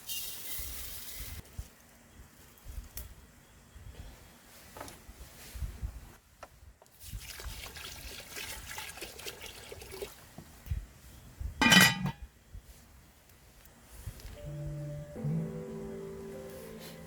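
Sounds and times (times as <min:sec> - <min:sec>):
water pouring into pot: 0:07.0 - 0:10.2.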